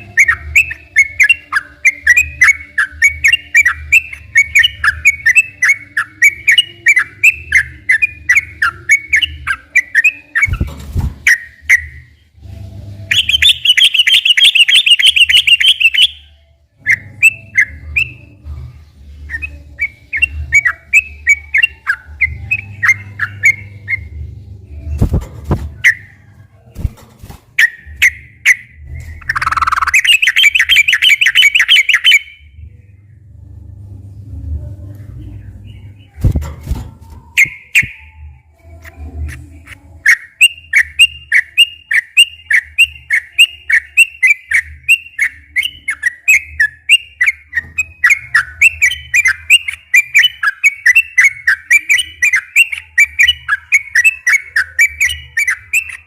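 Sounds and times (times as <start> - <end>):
bird fast trill: 13.1 - 16.3, 27.6 - 32.4
low hum: 22.3 - 30.0, 32.3 - 40.0.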